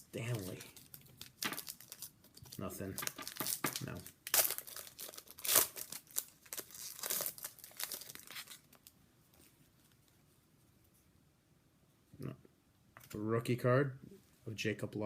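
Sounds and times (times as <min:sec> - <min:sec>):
foil wrapper crinkling: 0:00.2 - 0:09.0.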